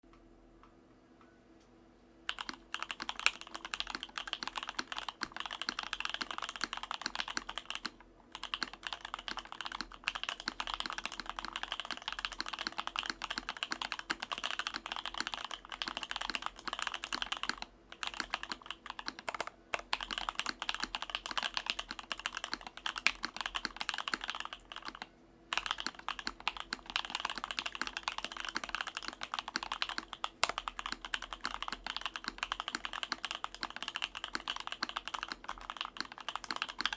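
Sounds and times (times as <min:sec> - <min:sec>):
fast typing on mechanical keyboard: 0:02.3 - 0:36.9.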